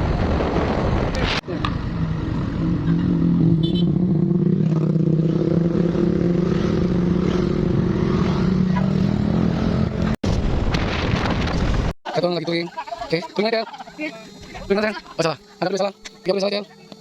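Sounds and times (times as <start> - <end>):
motorcycle engine droning: 0.0 - 10.2.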